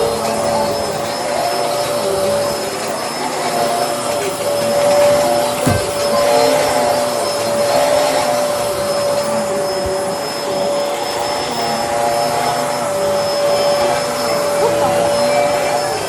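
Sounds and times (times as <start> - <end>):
vacuum cleaner running: 0.0 - 16.0
soft bumps: 5.2 - 6.1.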